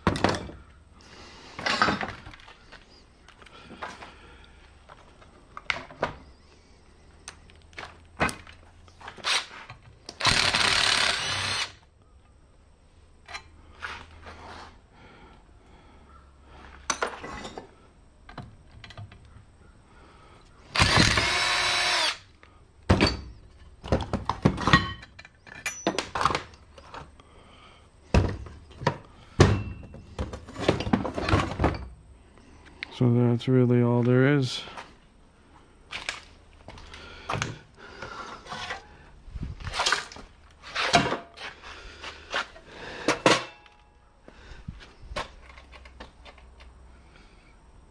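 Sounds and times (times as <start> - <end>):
power drill whining: 9.2 - 11.8, 20.7 - 22.3
metal parts clanking: 24.3 - 26.6.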